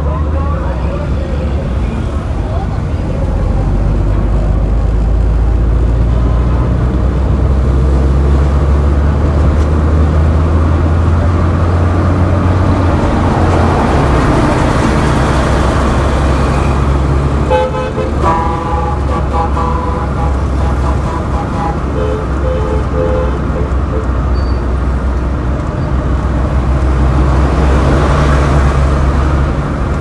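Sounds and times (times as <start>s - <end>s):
traffic engine rumble: 0.0s - 30.0s
vehicle horn honking: 16.6s - 24.7s.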